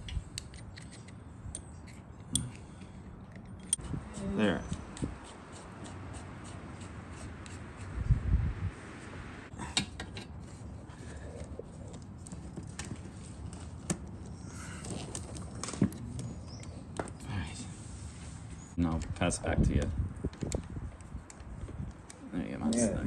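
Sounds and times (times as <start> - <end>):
metal tools clicking and knocking: 0.0 - 3.9.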